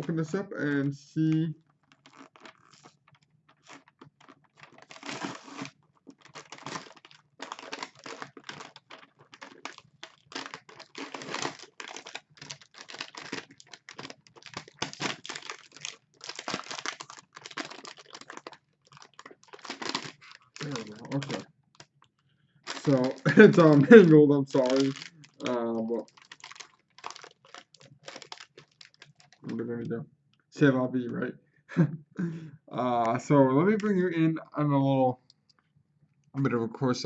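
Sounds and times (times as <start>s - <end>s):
food packaging crinkling and tearing: 1.6s - 29.6s.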